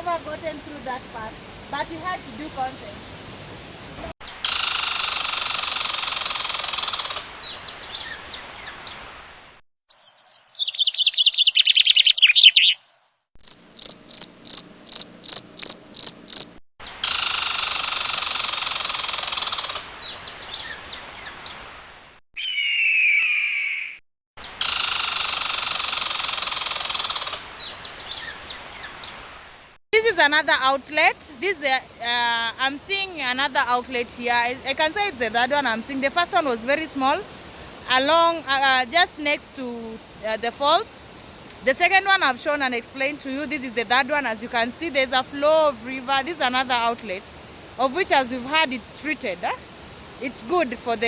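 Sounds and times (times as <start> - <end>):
rapid chirps: 4.2 - 8.1, 13.4 - 20.8, 24.6 - 28.5
insects buzzing chorus: 4.4 - 7.4, 13.5 - 19.9, 24.6 - 27.6
falling bird trill: 9.9 - 12.9, 22.4 - 24.8.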